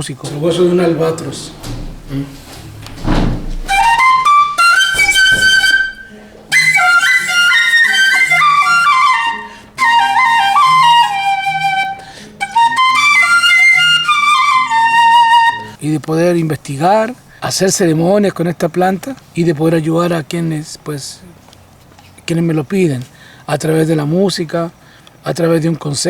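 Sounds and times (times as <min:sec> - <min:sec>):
breathy flute melody: 0:03.6 - 0:15.8.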